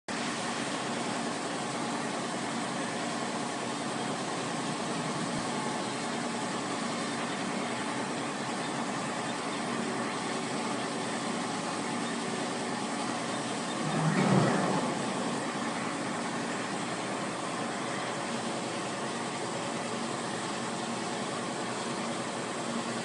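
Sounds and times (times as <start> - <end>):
faint hum: 4.6 - 22.2.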